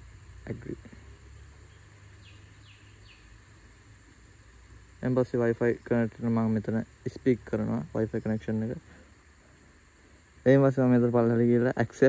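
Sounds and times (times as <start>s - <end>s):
steady low background noise: 0.0s - 12.0s
falling bird chirps: 1.6s - 3.4s.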